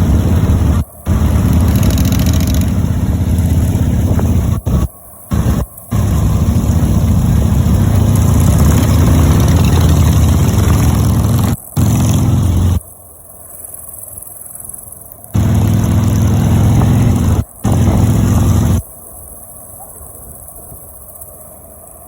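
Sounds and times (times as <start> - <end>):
motorcycle engines droning: 0.0 - 12.8, 15.3 - 18.8.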